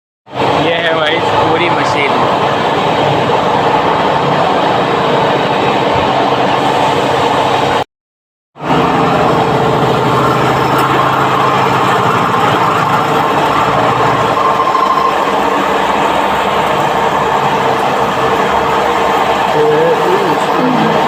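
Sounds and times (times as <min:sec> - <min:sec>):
machine running with hum: 0:08.6 - 0:21.0.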